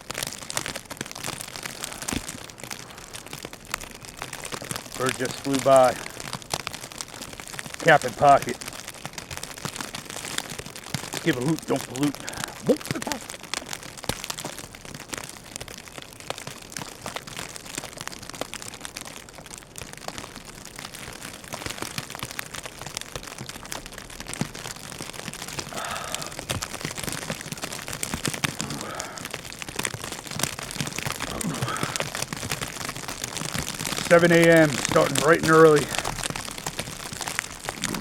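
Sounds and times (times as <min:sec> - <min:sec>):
snow hitting microphone: 0:05.0 - 0:06.1, 0:07.8 - 0:08.6, 0:31.3 - 0:32.2, 0:33.7 - 0:36.3, 0:37.4 - 0:38.0.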